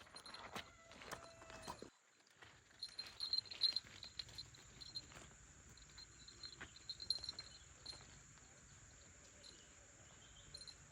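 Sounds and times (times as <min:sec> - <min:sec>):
faint high-pitched chirping: 0:06.1 - 0:10.9.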